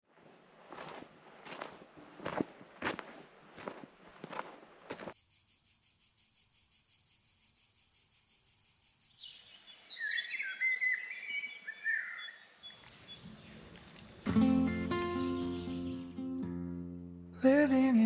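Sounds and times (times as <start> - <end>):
insects trilling: 0.1 - 15.5
songbird singing: 0.3 - 16.5.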